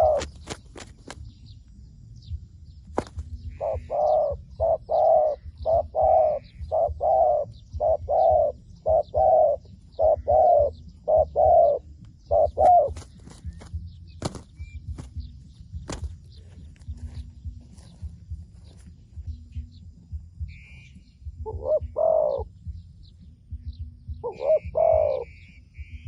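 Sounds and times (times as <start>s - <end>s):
dove cooing: 0.0s - 1.2s, 3.0s - 16.1s, 20.5s - 22.8s, 23.6s - 26.0s.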